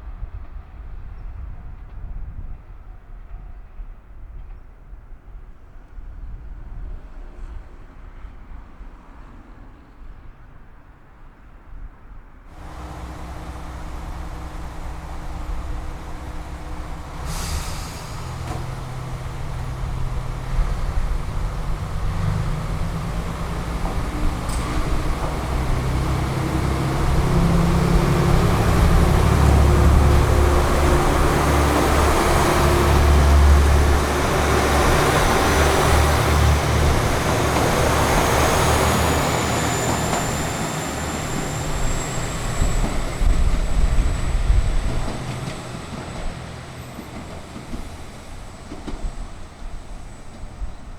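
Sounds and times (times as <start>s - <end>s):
diesel train engines accelerating: 12.6s - 50.9s.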